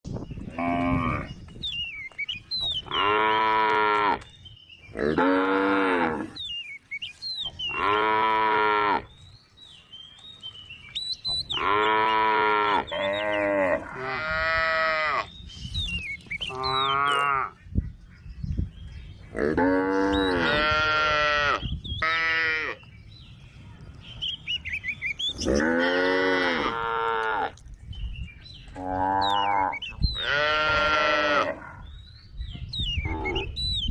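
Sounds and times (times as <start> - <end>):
cow mooing: 19.4 - 22.8, 25.4 - 27.5, 28.8 - 31.8.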